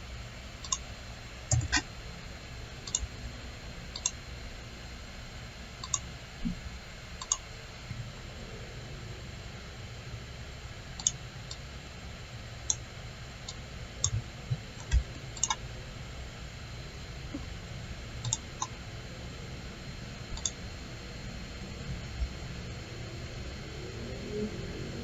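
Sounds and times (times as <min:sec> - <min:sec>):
low hiss and hum: 0:00.0 - 0:25.0
computer mouse clicking: 0:00.6 - 0:00.8, 0:01.5 - 0:01.8, 0:02.8 - 0:03.1, 0:04.0 - 0:04.2, 0:05.8 - 0:06.1, 0:07.2 - 0:07.4, 0:11.0 - 0:11.6, 0:14.8 - 0:15.6, 0:18.2 - 0:18.7, 0:20.4 - 0:20.6.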